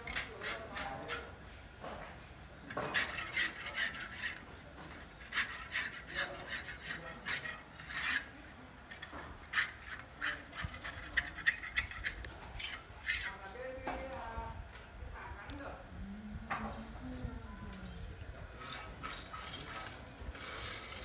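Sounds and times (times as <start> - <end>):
hand tool scraping gritty surface: 0.0 - 1.3, 2.7 - 13.4, 18.5 - 21.0.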